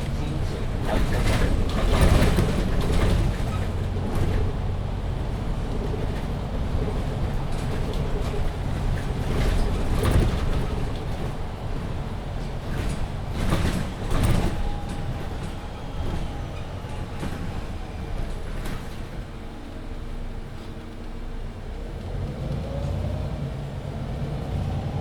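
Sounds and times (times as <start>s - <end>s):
knocks and rattles: 0.0s - 19.1s
bus engine rumble: 0.0s - 25.0s
road noise: 0.0s - 25.0s.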